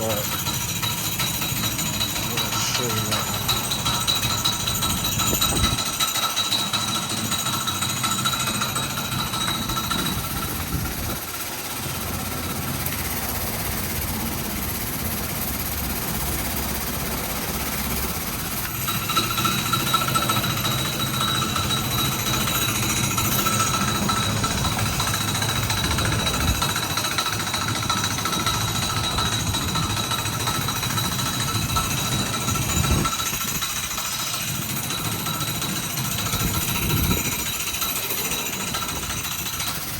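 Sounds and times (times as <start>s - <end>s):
thin whine: 0.0s - 6.0s.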